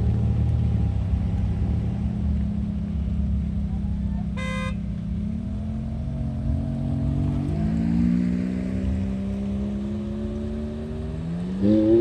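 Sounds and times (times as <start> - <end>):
short horn beep: 4.4 - 4.8
car engine revving: 4.4 - 12.0.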